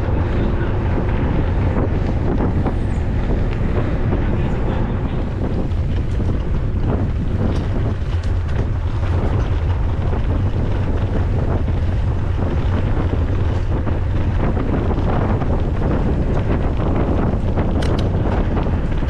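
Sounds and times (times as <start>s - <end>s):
wind buffeting microphone: 0.0s - 19.0s
light clicks and rattles: 4.3s - 19.0s.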